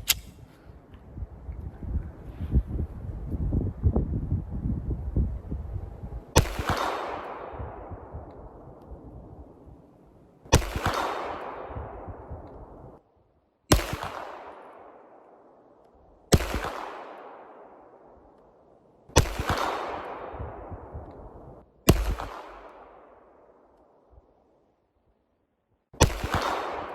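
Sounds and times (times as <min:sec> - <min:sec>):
pistol shots with echo: 0:06.4 - 0:08.6, 0:10.5 - 0:12.8, 0:13.7 - 0:18.3, 0:19.1 - 0:23.7, 0:26.0 - 0:26.9.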